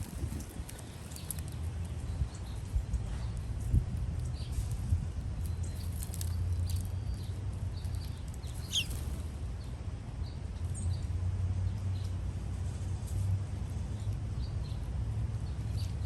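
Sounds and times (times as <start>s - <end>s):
high bird chirps: 8.5s - 9.1s.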